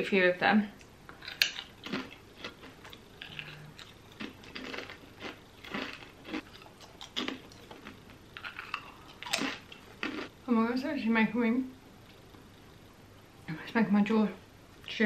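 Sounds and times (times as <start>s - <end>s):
person crunching a crisp: 1.3s - 10.3s.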